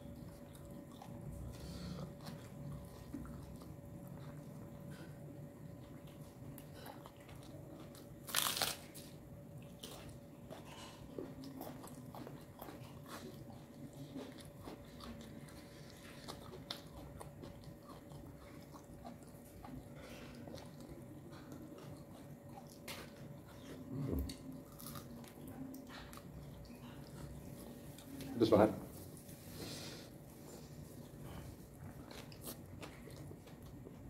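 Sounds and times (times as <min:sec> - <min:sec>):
crunching bite: 0:07.8 - 0:09.1, 0:24.3 - 0:25.2.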